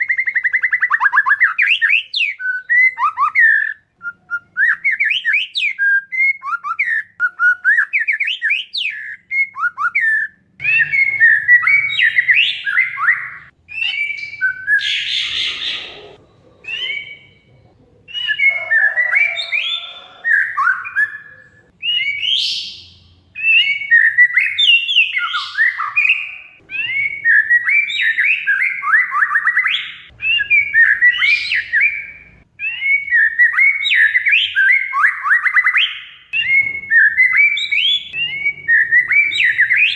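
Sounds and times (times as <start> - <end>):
magpie-robin singing: 0.0 - 39.9
harsh rasping bird chatter: 10.6 - 17.4.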